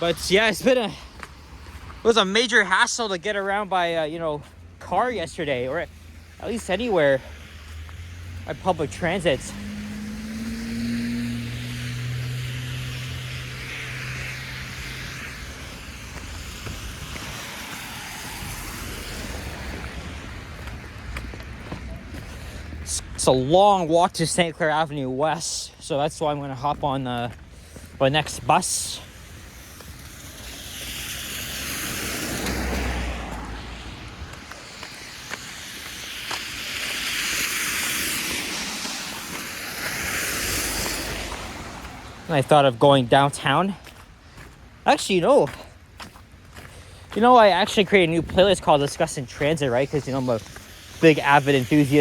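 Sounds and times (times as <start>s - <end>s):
cars passing with tyre noise: 0.0s - 52.0s
low traffic rumble: 0.0s - 52.0s
vehicle engine hum: 4.3s - 23.4s, 26.6s - 52.0s
wind buffeting microphone: 14.5s - 23.2s
tyre hiss: 49.2s - 52.0s.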